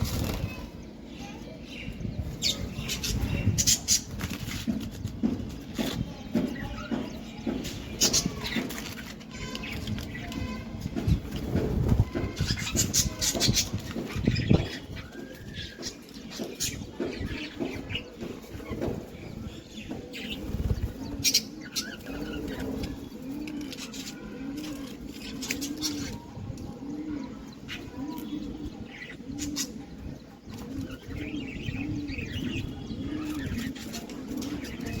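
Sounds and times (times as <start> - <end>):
pigeon cooing: 20.6 - 35.0.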